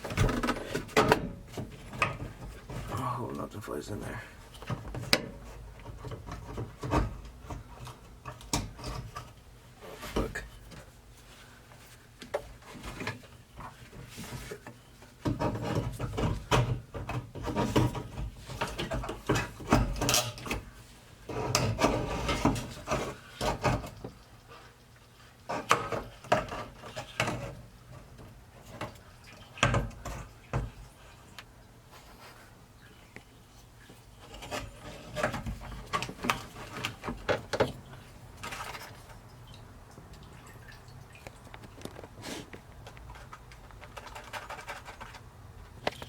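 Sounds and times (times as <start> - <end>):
clicks and knocks of handled parts: 41.2 - 46.0.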